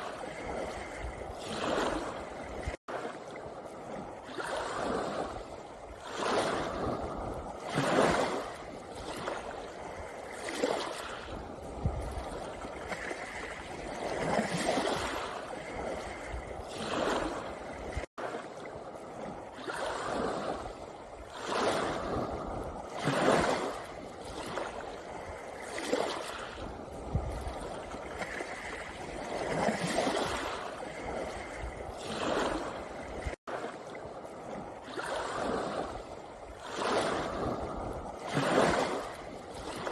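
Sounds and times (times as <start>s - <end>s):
waves washing over pebbles: 0.0s - 39.9s.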